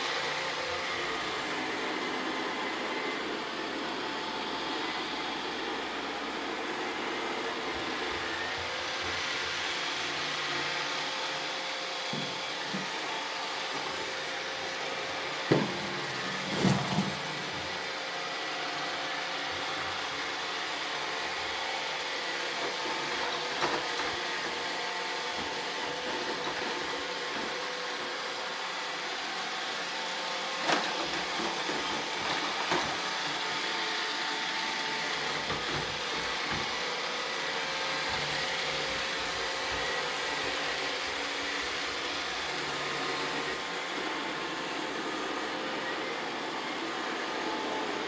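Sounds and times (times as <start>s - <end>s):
robot vacuum humming: 0.0s - 48.0s.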